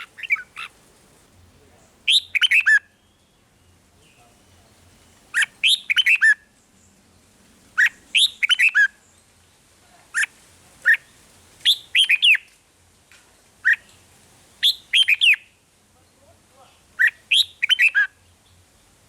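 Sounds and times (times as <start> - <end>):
bird singing whistled notes: 0.0 - 0.7, 2.1 - 6.6, 7.8 - 9.2, 10.2 - 12.5, 14.6 - 15.6, 17.0 - 18.6.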